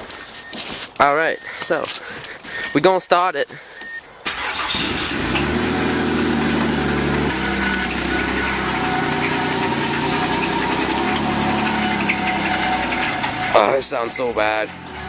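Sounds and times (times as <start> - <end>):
car engine idling roughly: 4.3 - 14.9.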